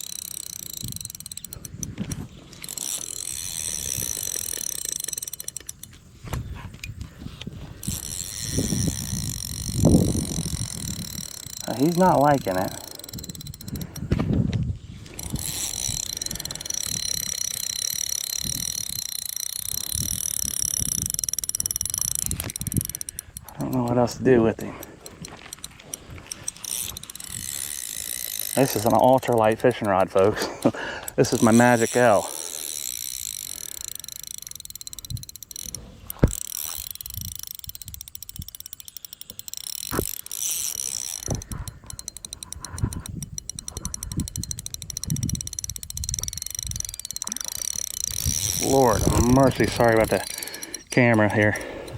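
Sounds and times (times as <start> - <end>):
fishing reel clicking rapidly: 0.0 - 14.3, 15.0 - 51.9.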